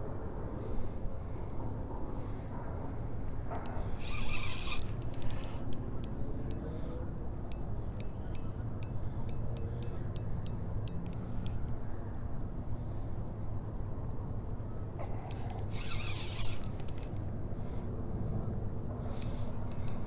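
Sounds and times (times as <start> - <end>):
fishing reel drag clicking: 3.7 - 6.6, 15.3 - 17.2, 19.1 - 20.0.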